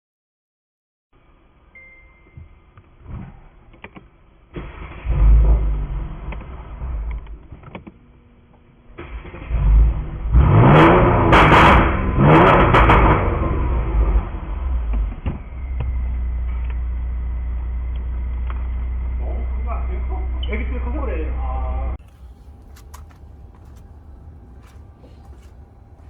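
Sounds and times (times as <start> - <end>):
car engine revving: 9.2 - 15.4, 22.0 - 26.0
car engine idling: 22.0 - 26.0
exhaust pops and crackles: 22.0 - 26.0.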